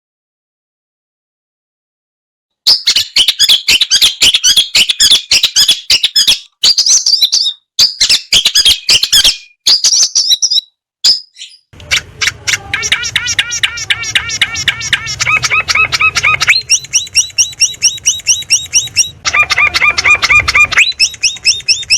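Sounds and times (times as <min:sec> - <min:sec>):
bird chattering song: 0:02.7 - 0:21.9
bird trilling song: 0:02.7 - 0:21.9
low hum: 0:11.8 - 0:21.9.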